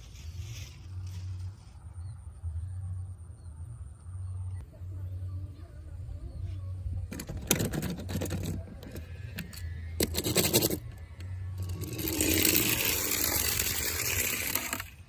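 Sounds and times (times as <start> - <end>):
toy cars scraping and rattling: 0.0 - 1.8, 7.1 - 15.0.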